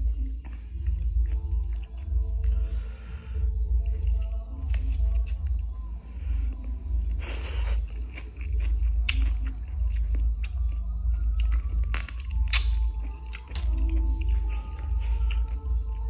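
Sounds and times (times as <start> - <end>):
chewing and crunching: 0.0 - 16.0
wet mouth clicks: 11.3 - 15.6.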